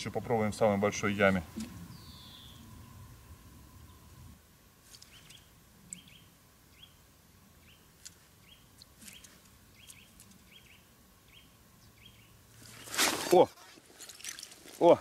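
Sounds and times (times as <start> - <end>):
bird chirping: 1.5 - 4.3, 5.0 - 12.4.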